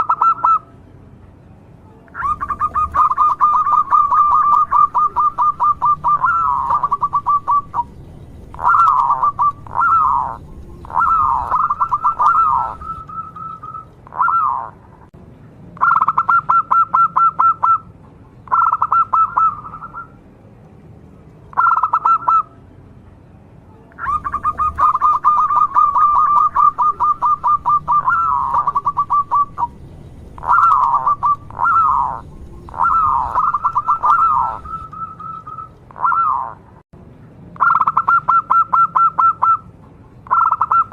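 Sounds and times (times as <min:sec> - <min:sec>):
dove cooing: 0:02.2 - 0:14.8, 0:18.5 - 0:20.1, 0:24.0 - 0:36.6.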